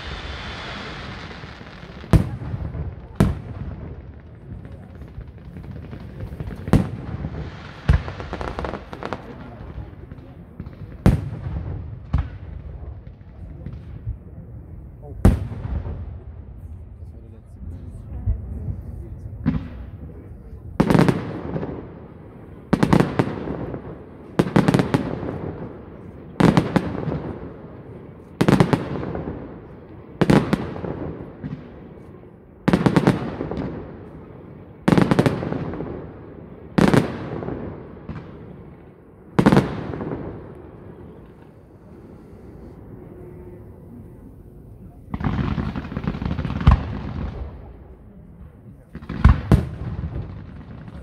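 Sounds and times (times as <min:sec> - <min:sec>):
hissing rush with sharp crack: 0:00.0 - 0:02.1.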